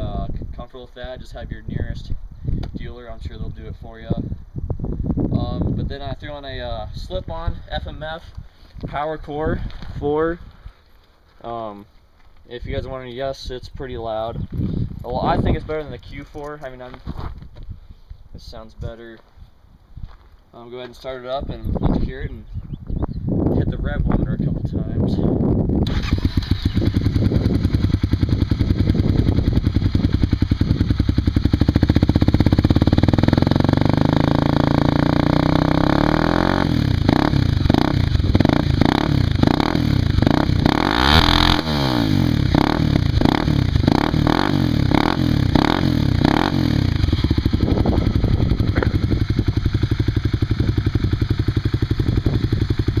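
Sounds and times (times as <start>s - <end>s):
motorcycle engine revving: 25.8s - 53.0s.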